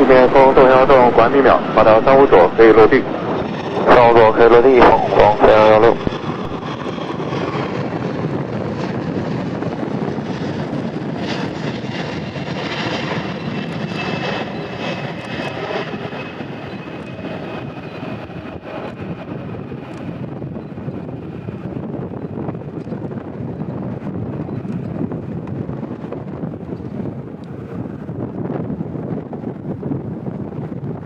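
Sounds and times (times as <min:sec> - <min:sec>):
jet flying past: 0:00.0 - 0:09.6
thin high whine: 0:03.8 - 0:06.6.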